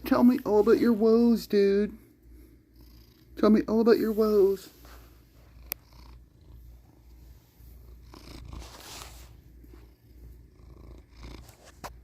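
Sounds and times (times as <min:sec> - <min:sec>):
cat purring: 0:00.0 - 0:12.0.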